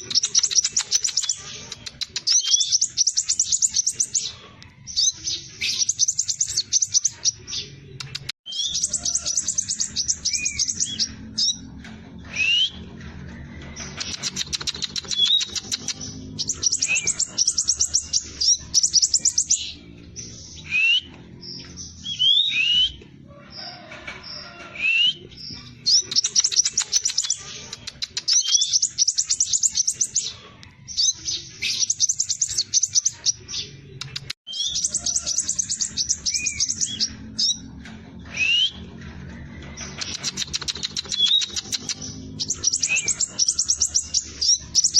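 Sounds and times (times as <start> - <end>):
bird singing high trills: 8.5 - 11.7, 13.8 - 23.0, 34.5 - 37.6, 39.9 - 44.9.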